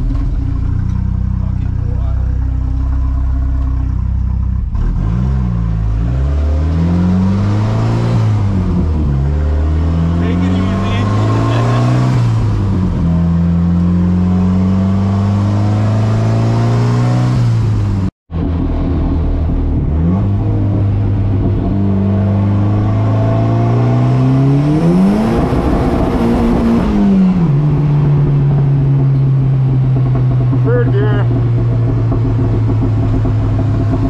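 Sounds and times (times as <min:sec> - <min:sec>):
car engine revving under load: 0:00.0 - 0:34.0.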